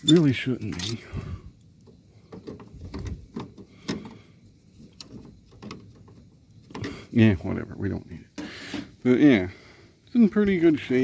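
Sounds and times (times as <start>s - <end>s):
clicks and rattles against plastic casing: 1.7s - 7.1s.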